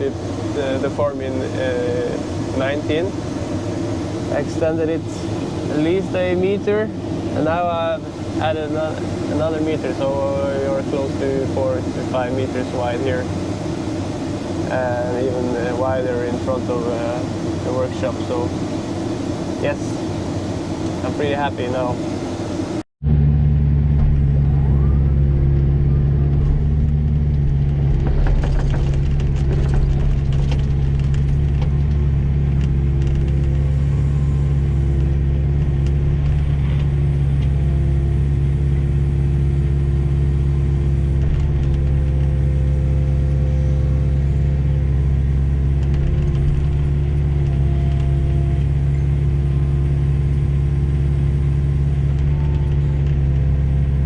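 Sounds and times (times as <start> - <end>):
diesel engine running: 0.0 - 54.0
faint clicks and rattles: 26.4 - 33.7.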